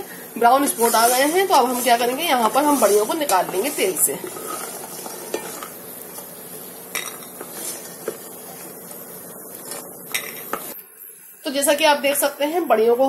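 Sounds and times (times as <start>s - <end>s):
food sizzling in oil: 0.0s - 13.0s
wooden spatula scraping a pot: 0.5s - 10.7s.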